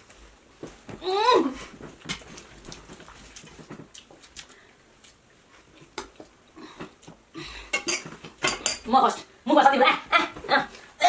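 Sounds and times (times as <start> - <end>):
tableware clinking: 7.7 - 8.9.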